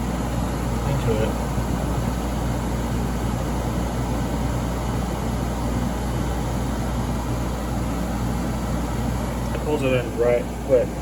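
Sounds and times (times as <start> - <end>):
window air conditioner running: 0.0 - 11.0.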